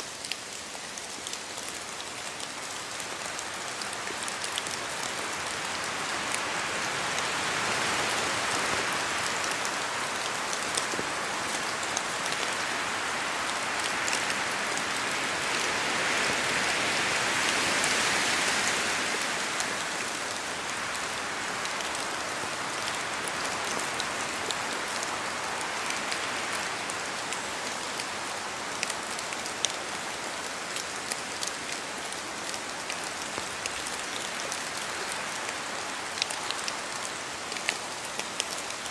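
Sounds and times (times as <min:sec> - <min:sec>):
raindrops pattering: 0:00.0 - 0:06.5
rain falling on trees: 0:00.0 - 0:38.9.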